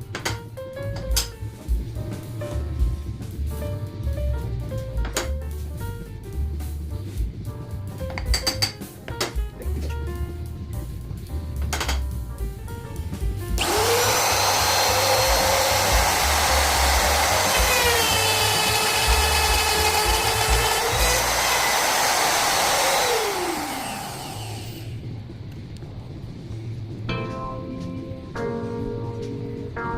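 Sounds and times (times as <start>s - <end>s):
electric wood router running: 13.6s - 25.0s.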